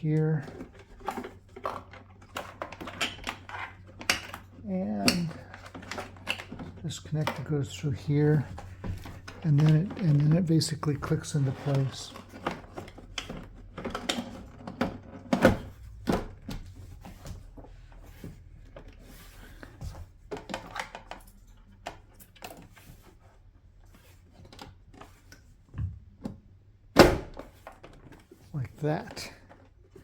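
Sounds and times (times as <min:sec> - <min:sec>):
plastic parts clicking and tapping: 0:00.2 - 0:17.2.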